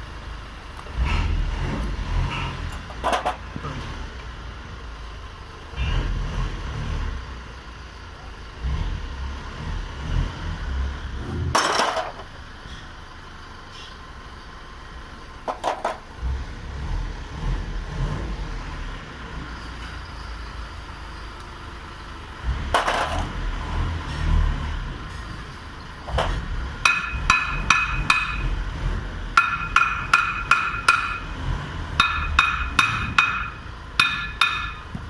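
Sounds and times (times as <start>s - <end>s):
tools knocking on brake parts: 26.1s - 28.5s, 29.4s - 31.3s, 32.0s - 35.0s.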